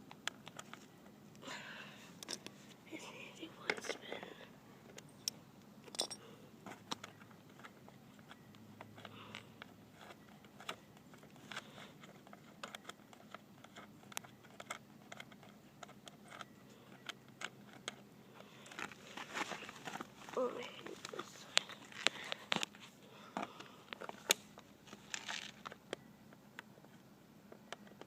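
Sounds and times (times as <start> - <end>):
metallic clicks of wrench and bolts: 5.2 - 6.2.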